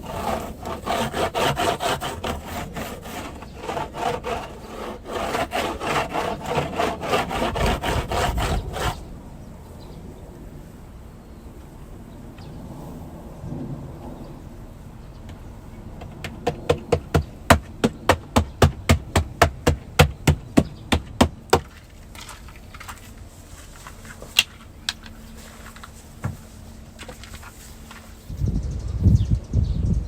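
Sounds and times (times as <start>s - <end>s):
sharp knocks: 16.0s - 21.7s.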